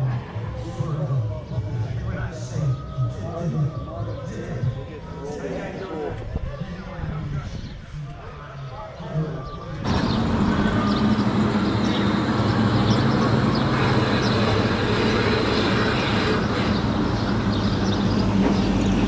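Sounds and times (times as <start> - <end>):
car engine running: 9.9 - 19.0.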